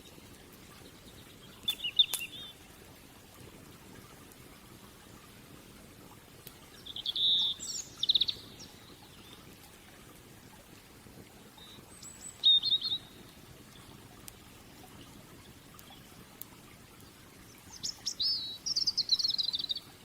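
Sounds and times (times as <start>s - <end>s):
soft hiss: 0.0s - 20.0s
wood fire crackling: 0.0s - 20.0s
songbird chirping: 1.0s - 2.6s, 6.8s - 9.4s, 11.6s - 13.9s, 17.5s - 20.0s.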